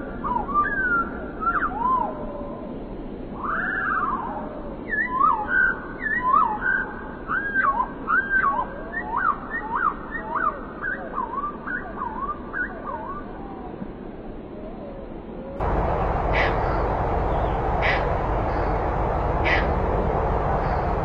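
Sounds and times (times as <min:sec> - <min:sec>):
songbirds whistling: 0:15.6 - 0:21.0.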